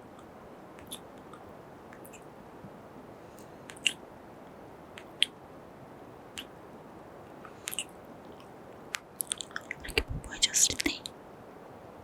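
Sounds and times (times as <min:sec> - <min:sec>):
faint steady hiss: 0:00.0 - 0:12.0
lip smacks and mouth clicks: 0:00.2 - 0:02.2, 0:03.4 - 0:04.0, 0:07.6 - 0:10.1.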